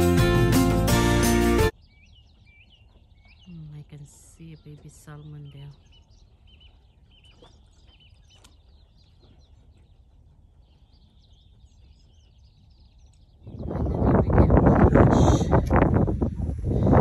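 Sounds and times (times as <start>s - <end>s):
faint bird chirps: 1.7s - 14.2s
wind buffeting microphone: 1.9s - 17.0s.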